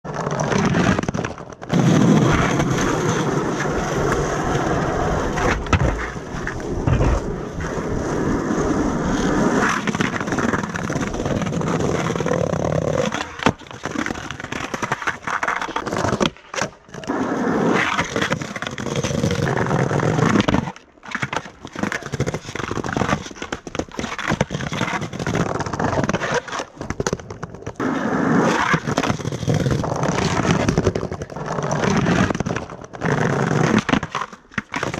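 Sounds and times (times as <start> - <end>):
skateboard wheels rolling on pavement: 0.0 - 34.9
sharp skateboard clack: 0.4 - 8.0.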